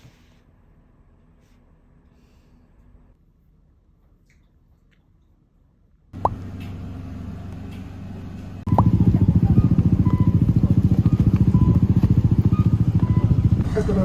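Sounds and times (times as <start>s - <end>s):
vehicle engine running: 6.2s - 14.0s.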